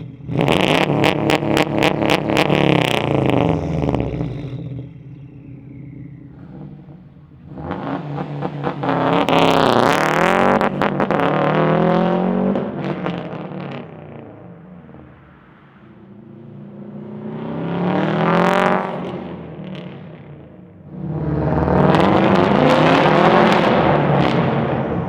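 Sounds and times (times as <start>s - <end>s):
car engine revving: 0.0s - 25.0s
exhaust stuttering: 0.0s - 25.0s.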